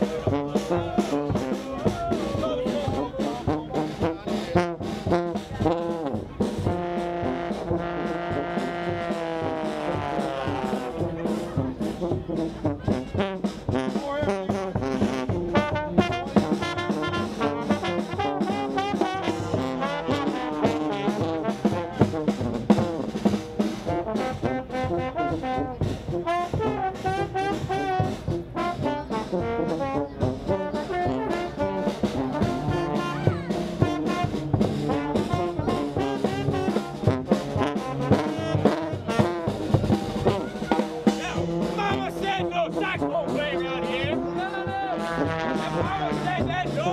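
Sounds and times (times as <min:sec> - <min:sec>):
brass band playing jazz: 0:00.0 - 0:46.9.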